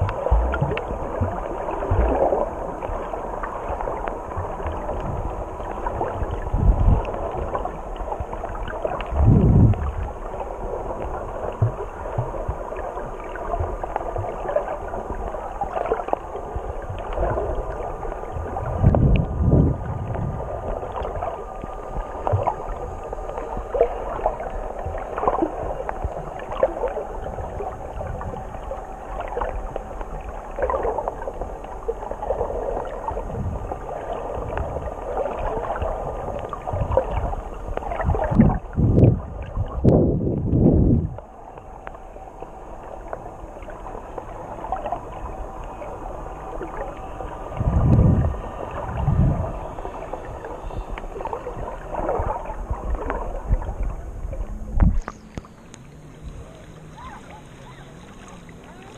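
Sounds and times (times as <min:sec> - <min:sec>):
low underwater whooshes: 0:00.0 - 0:58.9
muffled underwater water rushing: 0:00.0 - 0:58.9.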